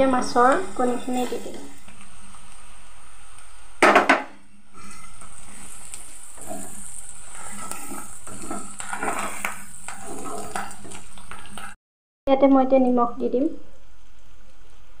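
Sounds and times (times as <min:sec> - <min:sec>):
fish roe sizzling in oil: 0:00.0 - 0:11.8
wooden spatula scraping pan: 0:04.7 - 0:11.8.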